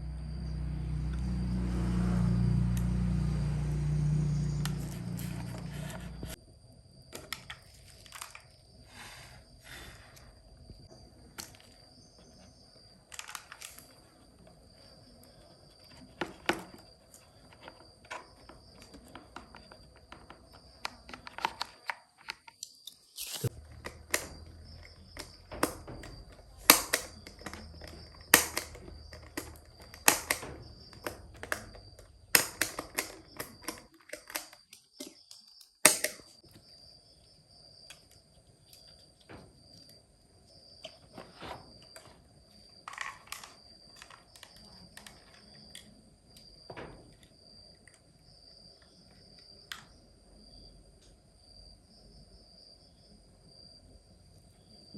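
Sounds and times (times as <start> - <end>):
hands clicking small hard parts: 23.4 - 36.3.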